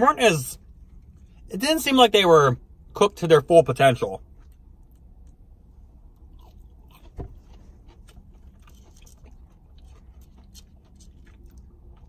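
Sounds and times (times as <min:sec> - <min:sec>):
chewing crunchy food: 0:04.2 - 0:12.0.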